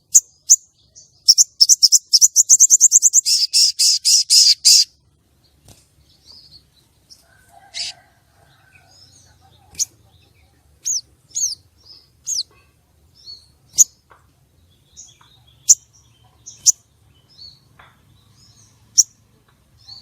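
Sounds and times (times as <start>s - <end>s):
bird chirping high: 0.0s - 5.0s, 8.6s - 14.0s, 14.7s - 19.2s.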